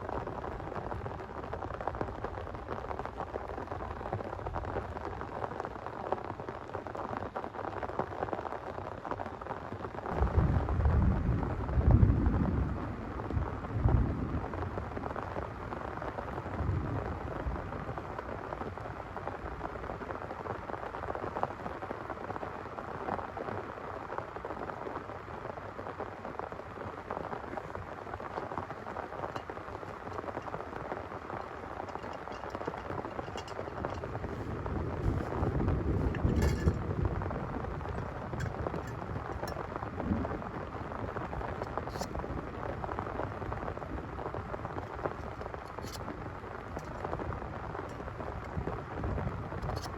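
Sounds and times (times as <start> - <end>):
heavy rain falling: 0.0 - 49.9
thunder rumbling: 10.1 - 18.4, 29.2 - 49.9.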